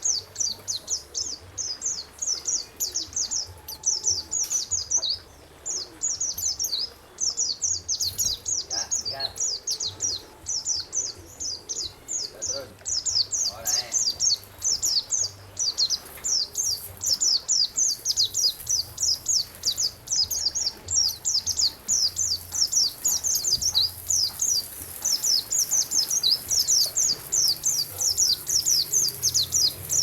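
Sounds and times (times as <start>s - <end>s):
songbird singing: 0.0s - 30.0s.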